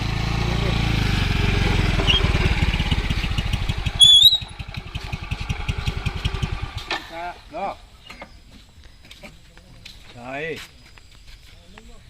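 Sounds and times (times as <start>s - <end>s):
small engine puttering: 0.2s - 8.4s
high whistle-like chirp: 4.0s - 4.6s.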